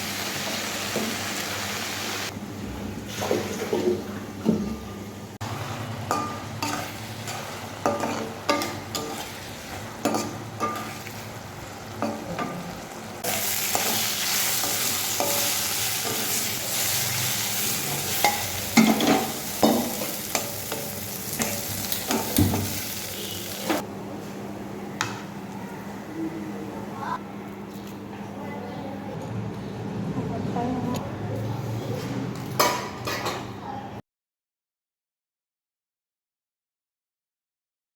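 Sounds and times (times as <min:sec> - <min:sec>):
hot oil sizzling: 0:00.0 - 0:02.3, 0:05.4 - 0:23.8.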